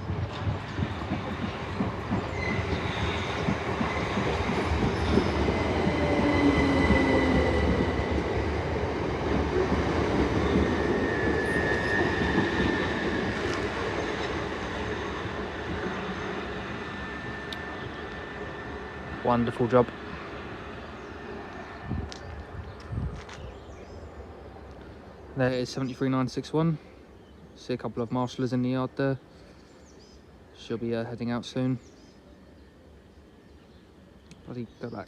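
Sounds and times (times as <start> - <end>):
train wheels rumbling on rails: 0.0 - 23.2.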